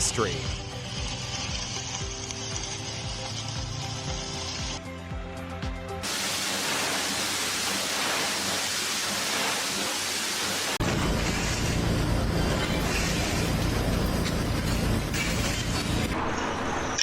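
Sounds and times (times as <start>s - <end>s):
background music with a beat: 0.2s - 6.1s
loud steady hiss: 6.0s - 16.1s.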